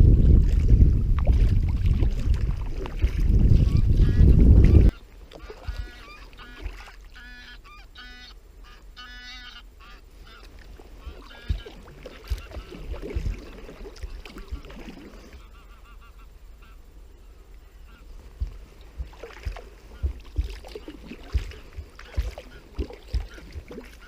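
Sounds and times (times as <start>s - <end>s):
wind and water rush on microphone: 0.0s - 7.2s, 10.1s - 15.5s, 17.5s - 24.0s
geese honking: 3.6s - 18.2s, 19.5s - 24.0s.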